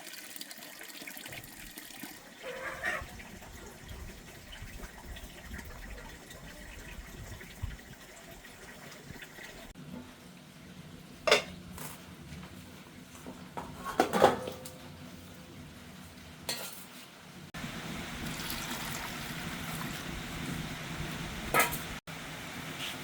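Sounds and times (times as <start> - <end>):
utensils clinking on dishes: 11.3 - 11.9, 16.5 - 16.9.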